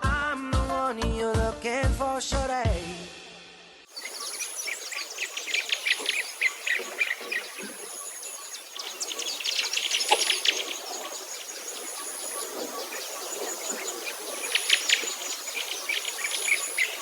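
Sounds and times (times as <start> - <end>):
birds chirping: 3.9 - 17.0
high-pitched insect trill: 3.9 - 17.0.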